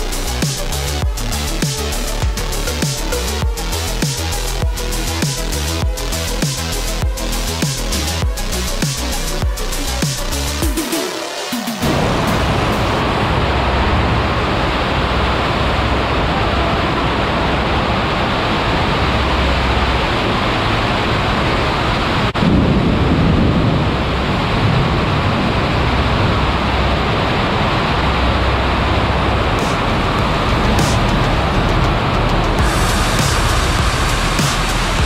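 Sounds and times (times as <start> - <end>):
deep rumble: 0.0 - 10.7, 11.8 - 35.0
heavy rain on a metal roof: 0.0 - 35.0.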